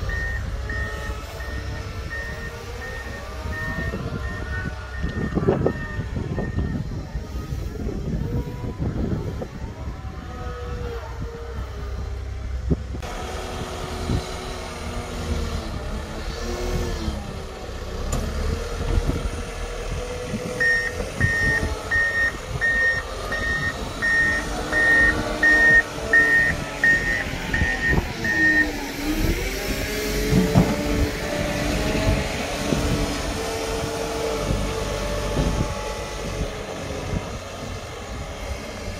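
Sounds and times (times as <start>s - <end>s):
vehicle engine revving: 0.0s - 38.9s
backup alarm beeping: 20.6s - 28.8s.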